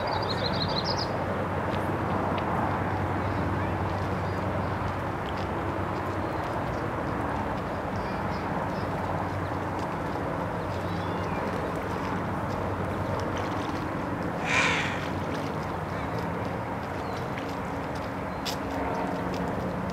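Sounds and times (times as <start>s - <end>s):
harsh bird call: 14.4s - 15.1s.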